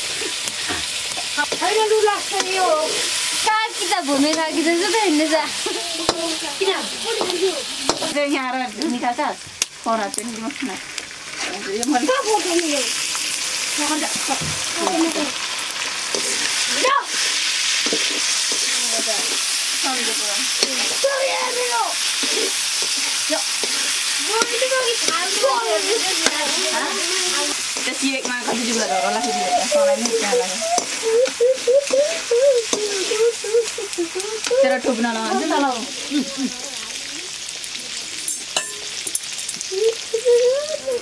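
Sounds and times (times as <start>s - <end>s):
chicken sizzling in a wok: 0.0s - 41.0s
metal ladle scraping a pan: 16.0s - 19.5s, 22.0s - 24.5s.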